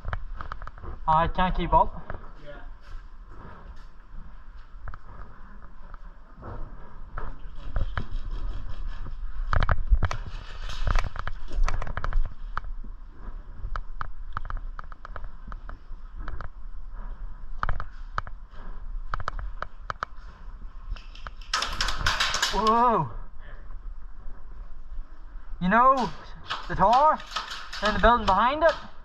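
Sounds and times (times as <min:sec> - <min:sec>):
airsoft guns firing: 0:26.4 - 0:29.0.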